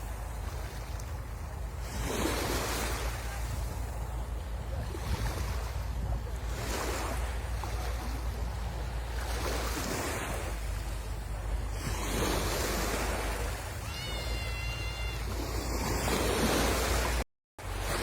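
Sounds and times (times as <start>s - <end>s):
sea waves breaking on shore: 0.0s - 18.0s
wind rumble on microphone: 0.0s - 18.0s.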